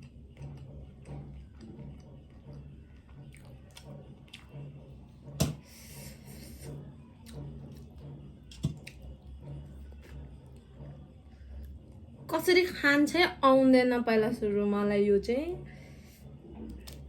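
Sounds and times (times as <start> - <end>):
person chewing crab: 3.2 - 4.7.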